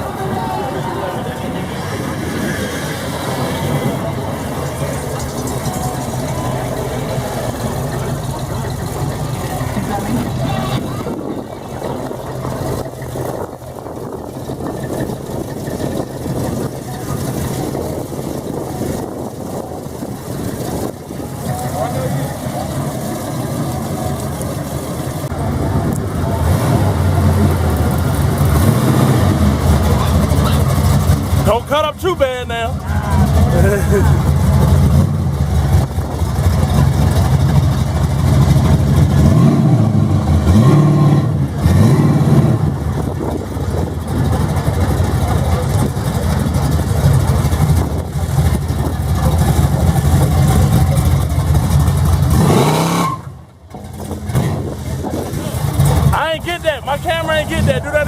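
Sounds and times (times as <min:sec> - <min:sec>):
car engine running low: 0:00.0 - 0:58.0.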